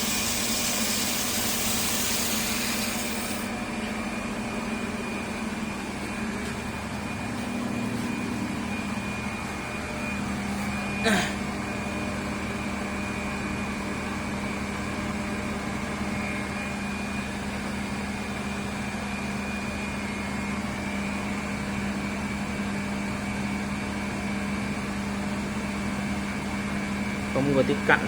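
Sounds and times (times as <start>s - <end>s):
high machine whine: 0.0s - 22.4s
machinery low hum: 0.0s - 28.0s.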